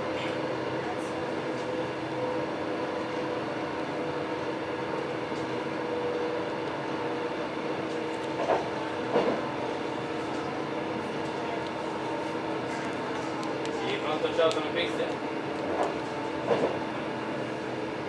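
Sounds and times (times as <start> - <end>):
train rumble inside carriage: 0.0 - 18.0.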